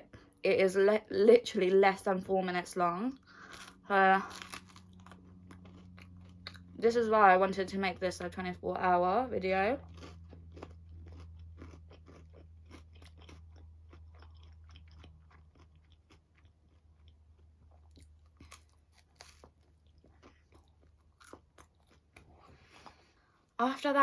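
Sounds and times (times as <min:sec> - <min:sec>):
low steady hum: 0:00.0 - 0:24.0
person chewing pizza: 0:03.2 - 0:06.8, 0:09.8 - 0:23.5.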